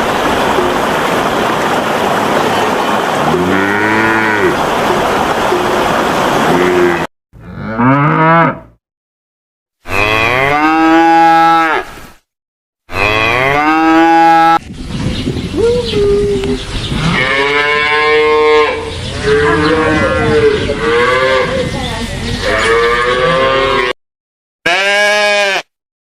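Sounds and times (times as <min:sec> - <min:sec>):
water rushing: 0:00.0 - 0:07.1
cattle mooing: 0:03.3 - 0:04.6, 0:06.5 - 0:08.8, 0:09.9 - 0:11.9, 0:12.9 - 0:14.6, 0:17.0 - 0:21.6, 0:22.4 - 0:24.0, 0:24.7 - 0:25.7.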